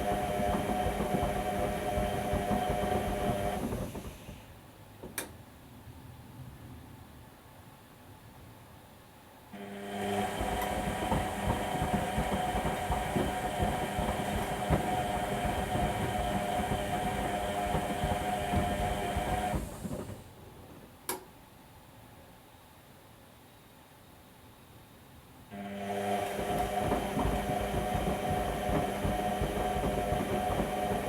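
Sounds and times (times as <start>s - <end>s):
washing machine motor hum: 0.0s - 4.6s, 9.6s - 20.7s, 25.5s - 31.0s.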